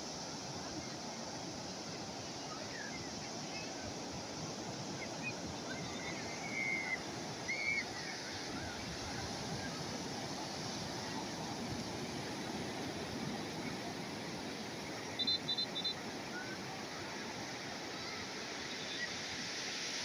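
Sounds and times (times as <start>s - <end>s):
calm sea waves washing on shore: 0.0s - 20.0s
short high chirps: 15.2s - 16.0s.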